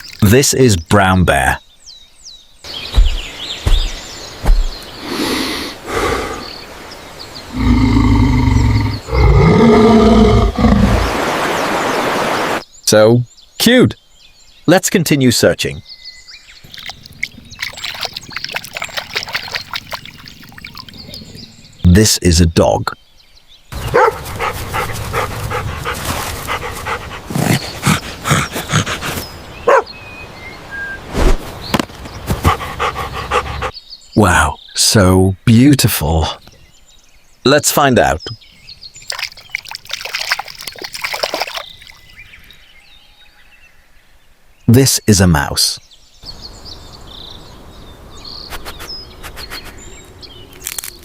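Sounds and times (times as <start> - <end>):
bear roaring: 7.5 - 11.1
dog barking: 23.9 - 24.3, 29.7 - 29.9.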